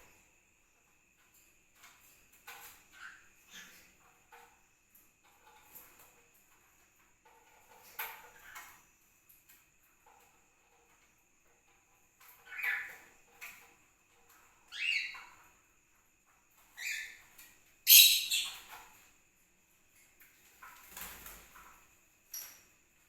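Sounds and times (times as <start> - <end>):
parrots calling shrilly: 17.9 - 18.6.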